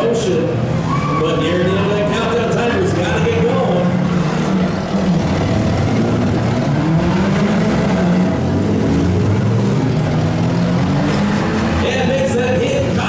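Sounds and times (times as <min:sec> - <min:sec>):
vehicle engines revving: 0:00.0 - 0:13.0.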